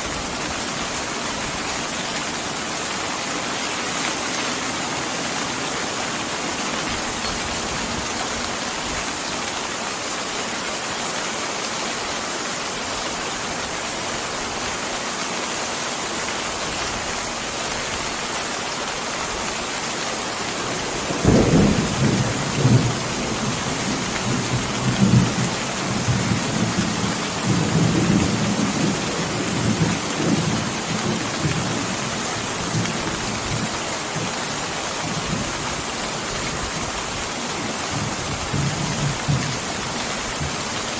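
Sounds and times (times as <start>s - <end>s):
rain hiss: 0.0s - 40.9s
thunder rumbling: 20.7s - 34.3s.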